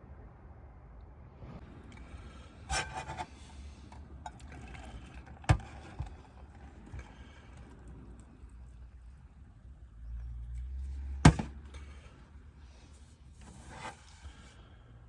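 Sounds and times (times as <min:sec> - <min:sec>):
scrape with clattering ring: 0:02.7 - 0:03.6.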